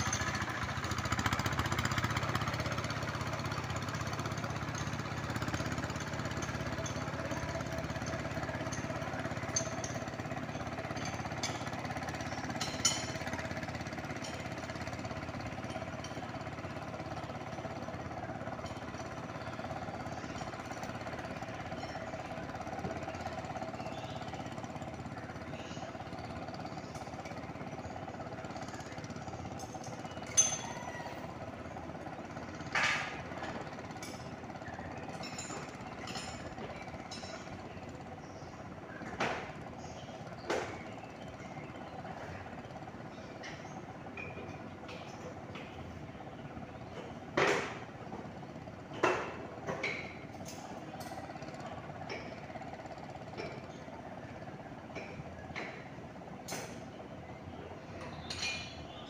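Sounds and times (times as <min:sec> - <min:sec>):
tractor engine chugging: 0:00.0 - 0:59.0.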